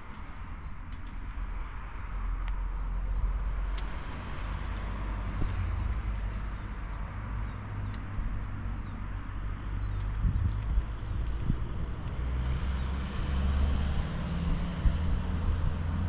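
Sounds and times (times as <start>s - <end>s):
small birds chirping: 0.0s - 3.4s, 4.8s - 12.9s, 14.9s - 15.8s
vehicle engine rumbling: 0.0s - 16.0s.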